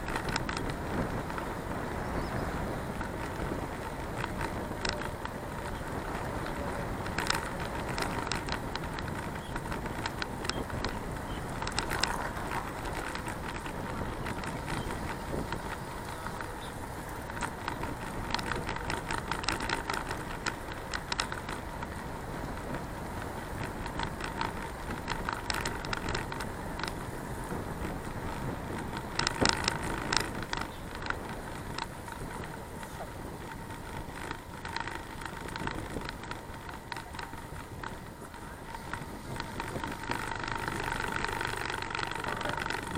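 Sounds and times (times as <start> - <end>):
tyre and wind noise rushing: 0.0 - 20.3
bicycle clicking and rattling: 0.0 - 42.9.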